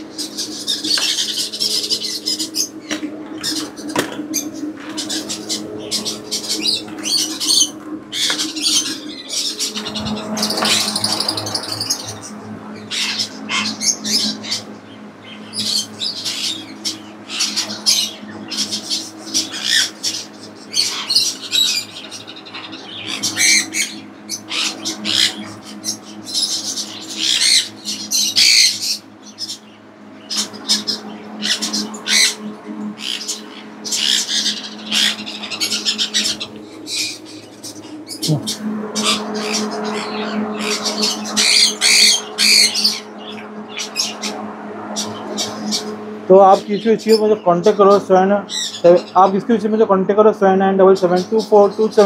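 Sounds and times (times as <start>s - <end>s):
caged birds chirping and squawking: 0.0s - 52.0s
steady low hum: 0.0s - 52.0s.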